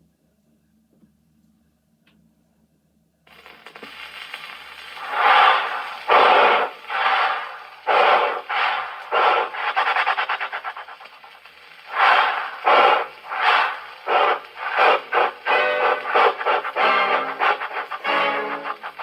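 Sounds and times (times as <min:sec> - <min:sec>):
rubbed percussion chuffing: 0:04.6 - 0:19.0.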